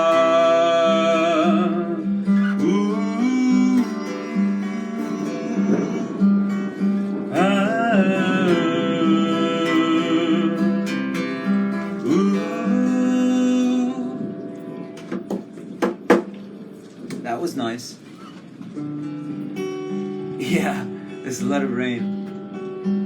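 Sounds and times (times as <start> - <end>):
person singing: 0.0 - 14.5
acoustic guitar playing: 0.0 - 23.0.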